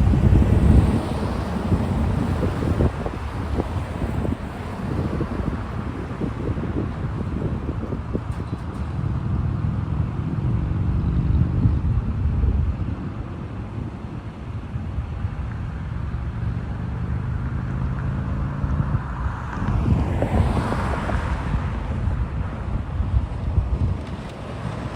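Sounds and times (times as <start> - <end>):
vehicle engines droning: 0.0 - 24.9
wind on microphone: 0.0 - 24.9
vehicle passing close by: 15.7 - 24.9.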